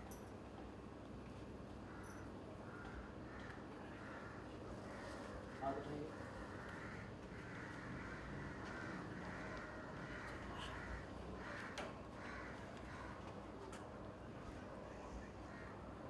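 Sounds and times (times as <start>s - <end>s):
bird hoarse calls: 1.8s - 13.2s.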